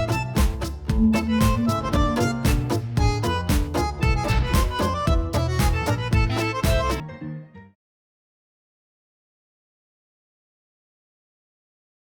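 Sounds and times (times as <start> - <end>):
music with a quick beat: 0.0 - 7.0.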